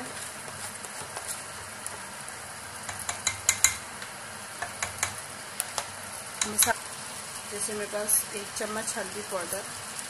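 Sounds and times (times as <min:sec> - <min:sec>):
spatula scraping and tapping plate: 0:00.0 - 0:02.0, 0:02.9 - 0:03.8, 0:04.6 - 0:05.2
food sizzling in hot oil: 0:00.0 - 0:10.0.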